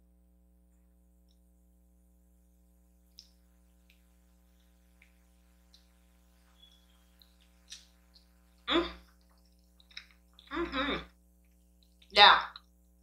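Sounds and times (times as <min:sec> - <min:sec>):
low electrical hum: 0:00.0 - 0:13.0
soft eating clicks: 0:03.1 - 0:10.6.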